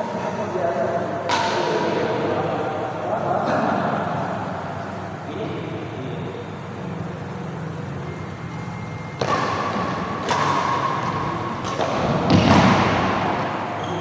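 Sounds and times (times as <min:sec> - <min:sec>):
racket hitting shuttlecock: 0:01.3 - 0:02.0, 0:09.1 - 0:14.0.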